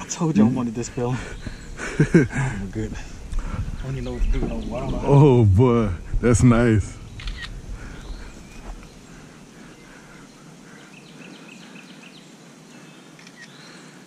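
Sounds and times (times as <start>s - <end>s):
faint click: 13.2s - 13.6s.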